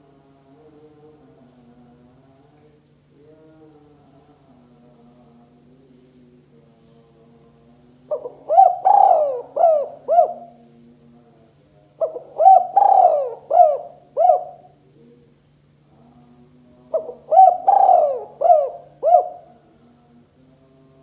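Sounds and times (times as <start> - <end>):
faint steady hum: 0.0 - 21.0
dove cooing: 8.1 - 10.6, 12.0 - 15.0, 16.9 - 19.6.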